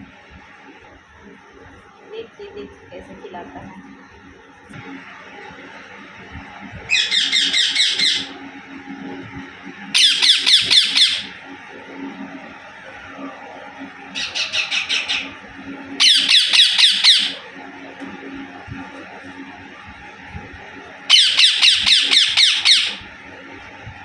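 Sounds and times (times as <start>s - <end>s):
parakeet screeching: 6.9s - 8.4s, 10.0s - 11.4s, 14.2s - 15.4s, 16.0s - 17.4s, 21.1s - 23.1s.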